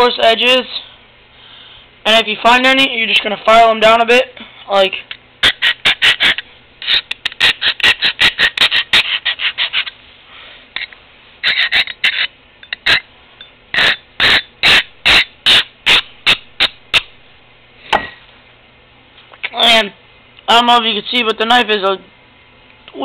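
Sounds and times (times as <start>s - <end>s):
knife blade scraping on abrasive: 5.4s - 10.0s, 10.8s - 13.1s, 13.7s - 17.1s.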